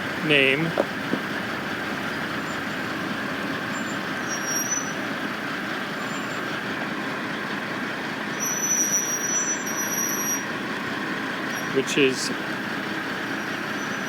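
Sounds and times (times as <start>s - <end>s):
heavy construction machinery drone: 10.4s - 14.0s.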